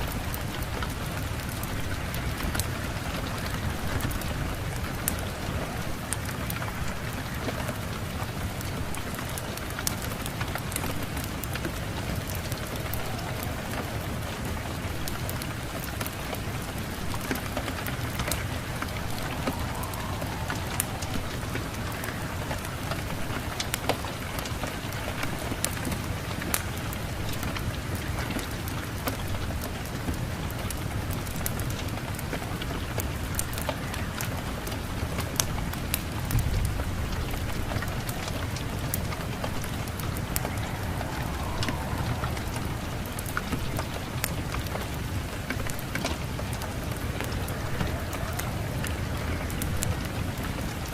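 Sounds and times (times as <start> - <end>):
steady rain: 0.0 - 50.9
low rumble: 11.8 - 24.3, 38.1 - 50.4.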